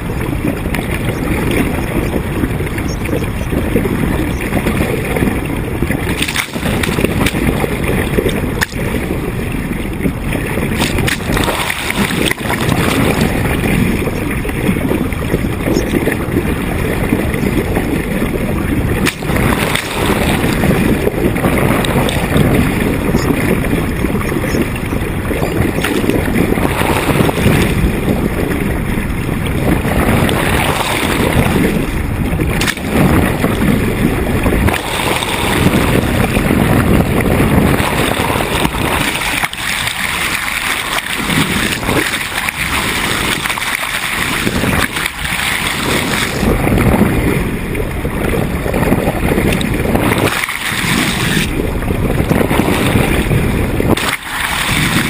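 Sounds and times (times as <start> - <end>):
water rushing along hull: 0.0 - 55.0
wind buffeting microphone: 0.0 - 55.0.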